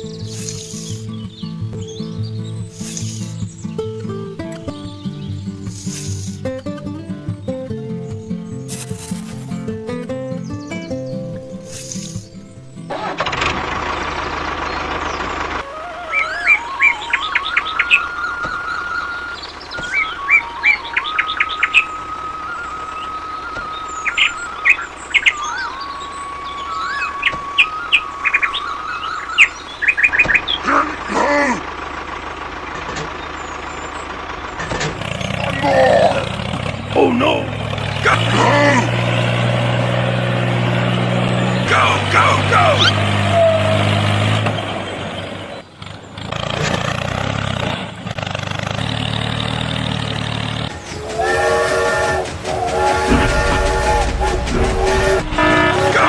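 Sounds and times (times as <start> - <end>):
birds chirping: 0.0 - 12.9, 14.0 - 31.2, 32.6 - 46.2, 50.7 - 56.0
bird call with bending pitches: 15.1 - 30.7
train rumbling: 50.5 - 56.0
steady high tone: 50.7 - 56.0
train horn blasts: 50.7 - 56.0.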